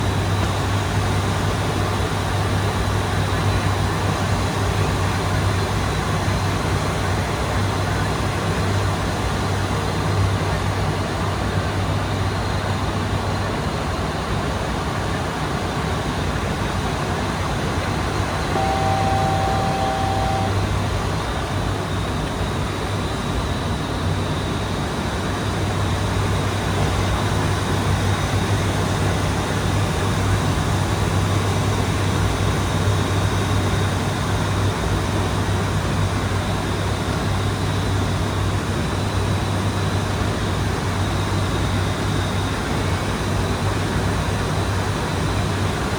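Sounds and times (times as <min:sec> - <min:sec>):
turboprop engine drone: 0:00.0 - 0:45.9
steady tone: 0:18.2 - 0:21.2.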